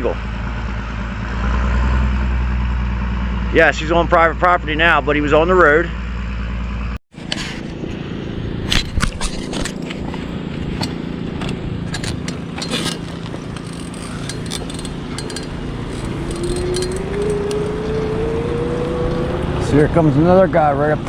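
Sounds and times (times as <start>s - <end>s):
riding mower engine humming: 6.0s - 21.0s
sharp clicks and clinks: 8.7s - 18.0s.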